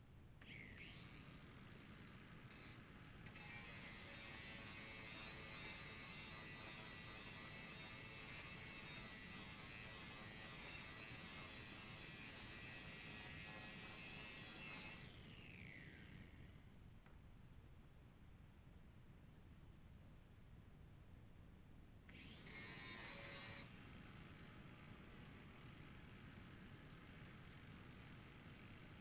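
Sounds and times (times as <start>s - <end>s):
electric grinder whining: 2.5s - 16.3s, 22.1s - 23.8s.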